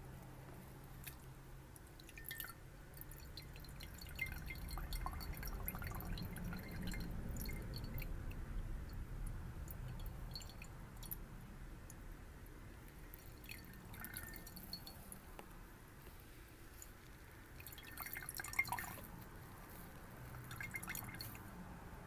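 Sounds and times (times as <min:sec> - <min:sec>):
water dripping in a glass: 0:01.0 - 0:11.2, 0:12.9 - 0:15.5, 0:17.6 - 0:19.2, 0:20.4 - 0:21.4.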